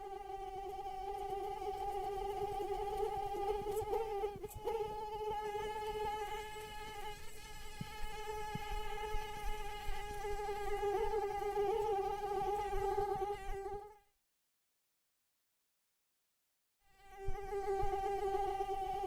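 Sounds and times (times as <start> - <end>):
mosquito wings whining: 1.1 - 10.4.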